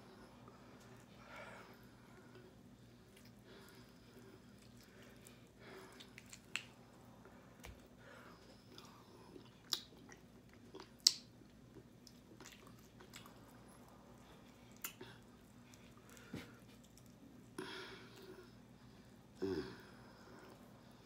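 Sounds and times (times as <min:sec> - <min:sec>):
person biting and wet chewing: 0:04.5 - 0:06.8.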